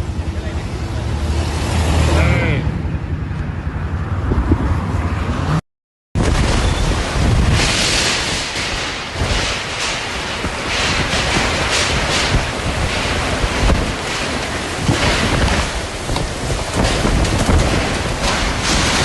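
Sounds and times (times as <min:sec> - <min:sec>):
strong wind gusting: 0:00.0 - 0:05.6, 0:06.2 - 0:19.0
wind buffeting microphone: 0:03.6 - 0:05.6, 0:06.2 - 0:19.0.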